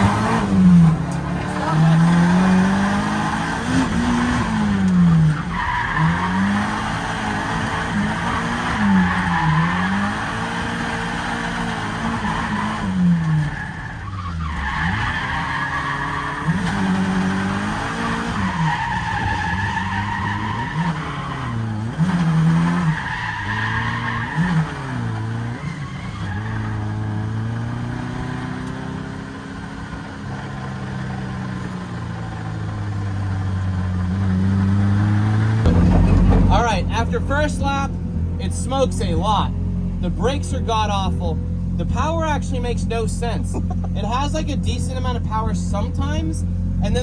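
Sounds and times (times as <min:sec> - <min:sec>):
car engine revving: 0:00.0 - 0:47.0
tyres squealing: 0:12.2 - 0:27.3.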